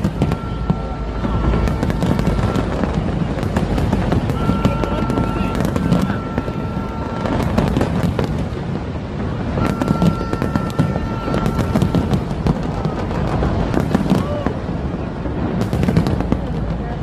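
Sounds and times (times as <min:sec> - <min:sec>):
fireworks bangs and crackles: 0:00.0 - 0:17.0
high whistle: 0:09.6 - 0:12.2.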